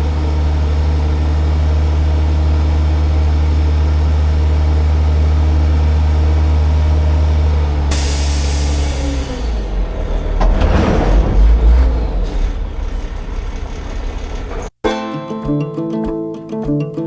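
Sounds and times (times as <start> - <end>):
engine running steadily: 0.0 - 14.7
loud hiss: 7.9 - 9.7.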